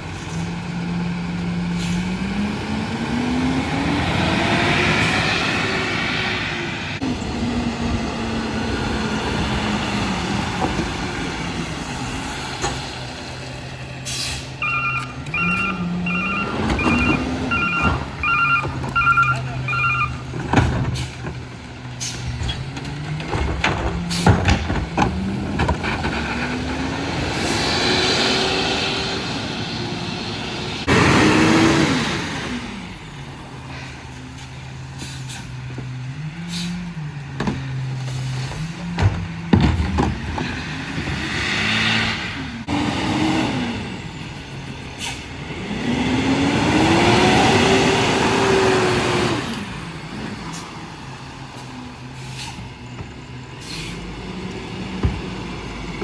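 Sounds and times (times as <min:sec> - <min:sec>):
garbage truck engine revving: 0:00.0 - 0:56.0
backup alarm beeps: 0:14.6 - 0:20.3.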